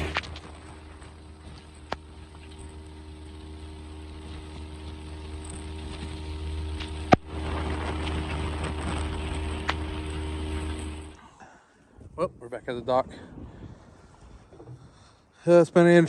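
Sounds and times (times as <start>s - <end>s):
outboard motor running: 0.0s - 11.4s.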